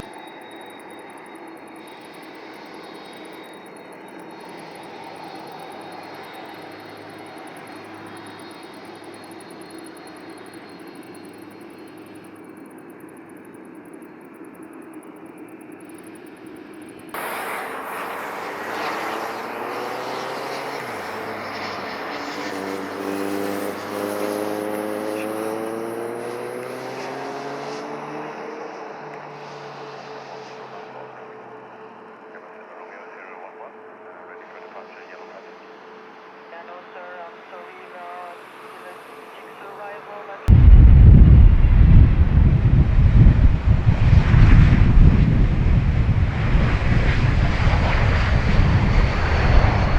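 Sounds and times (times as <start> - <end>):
jet engines roaring: 0.0 - 49.9
rising engine whine: 0.0 - 49.9
wind buffeting microphone: 40.5 - 49.9.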